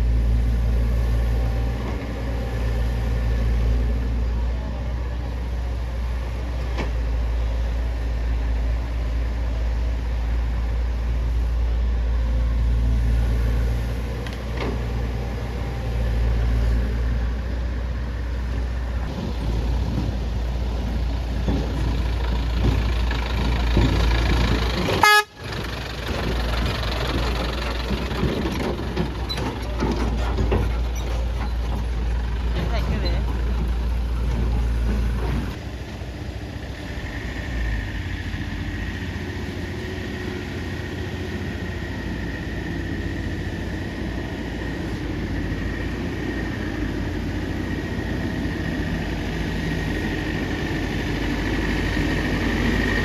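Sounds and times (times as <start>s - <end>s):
diesel engine rumbling: 0.0s - 53.0s
short horn toot: 25.0s - 25.4s.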